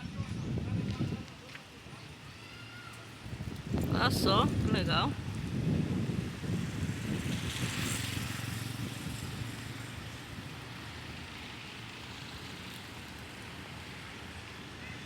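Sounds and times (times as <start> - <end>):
motor vehicle rumbling past: 5.2 - 13.5.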